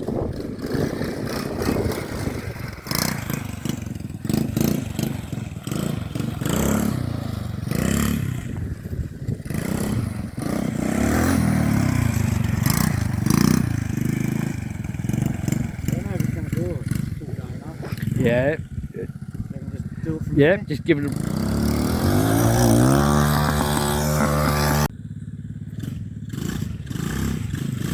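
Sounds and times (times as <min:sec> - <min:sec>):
model motor revving: 0:20.9 - 0:24.9.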